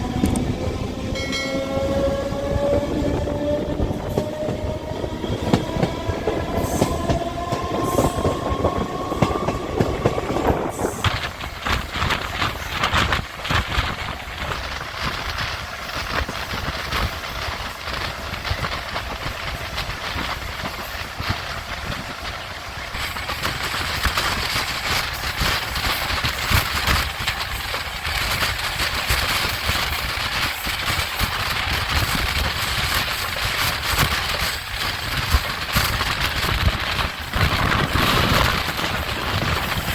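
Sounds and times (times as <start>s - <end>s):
train rumbling at speed: 0.0s - 39.9s
wheels clacking over rails: 0.0s - 39.9s
train horn: 1.1s - 3.0s.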